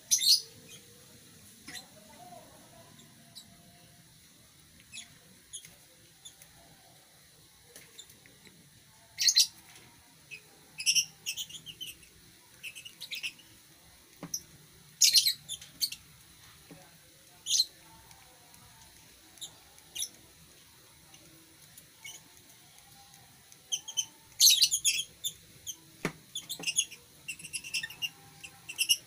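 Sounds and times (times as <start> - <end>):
lovebirds chirping and squawking: 0.1 - 0.9, 4.9 - 6.5, 9.2 - 9.6, 10.3 - 13.6, 14.3 - 16.1, 17.4 - 17.8, 19.4 - 20.2, 21.9 - 22.3, 23.6 - 29.0.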